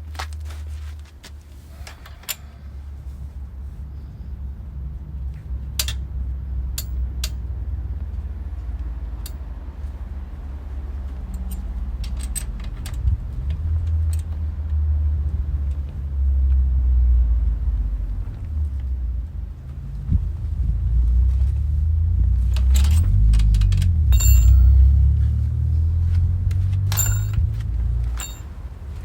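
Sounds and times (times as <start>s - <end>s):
wind rumble on microphone: 2.4s - 29.0s
metallic clinks of tools: 22.5s - 25.2s, 26.8s - 28.6s.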